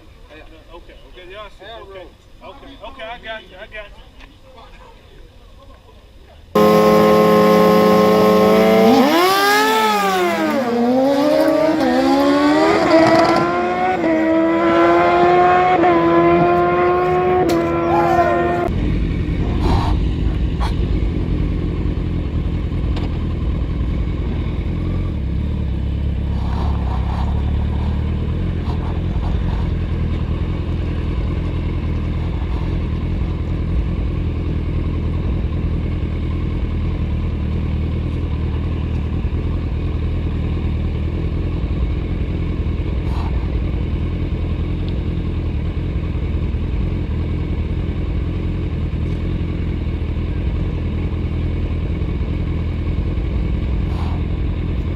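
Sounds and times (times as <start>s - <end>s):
motorcycle engine idling: 18.4s - 26.4s, 27.2s - 54.9s.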